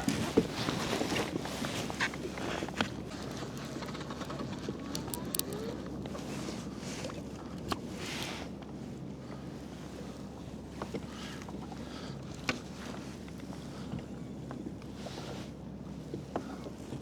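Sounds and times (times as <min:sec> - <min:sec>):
wind: 0:00.0 - 0:17.0
fishing gear clicking and knocking: 0:03.4 - 0:05.6.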